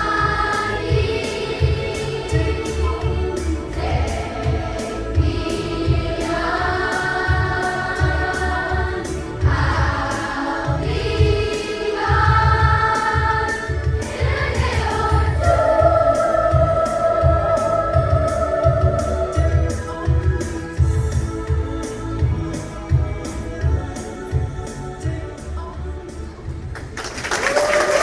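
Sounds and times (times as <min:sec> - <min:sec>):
children's choir singing: 0:00.0 - 0:26.2.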